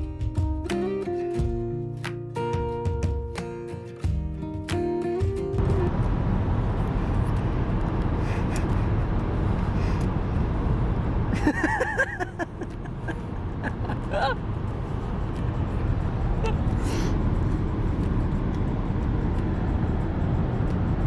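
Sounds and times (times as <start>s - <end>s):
car road rumble from inside: 5.6s - 21.0s.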